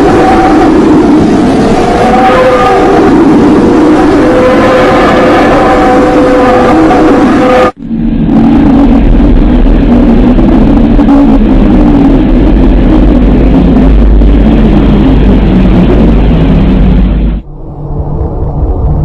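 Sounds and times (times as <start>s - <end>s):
deep hum: 0.0s - 19.0s
rumbling space drone: 0.0s - 19.0s.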